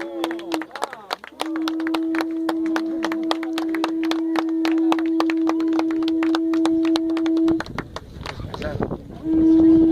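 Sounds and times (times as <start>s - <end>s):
horn long steady note: 1.4s - 7.8s, 9.1s - 9.9s.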